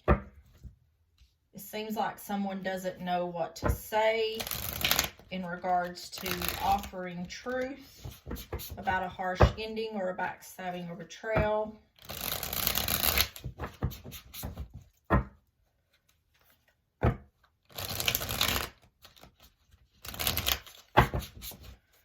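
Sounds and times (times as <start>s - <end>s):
cards being shuffled: 4.4s - 5.3s, 6.2s - 6.9s, 7.5s - 9.0s, 12.0s - 15.0s, 17.6s - 22.0s.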